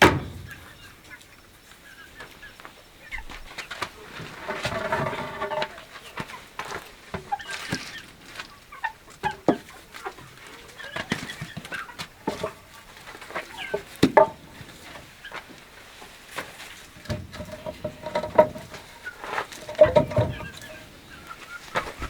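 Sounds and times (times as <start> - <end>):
knocks and clatter: 0.0 - 0.8, 17.0 - 20.9
chickens clucking: 0.0 - 22.0.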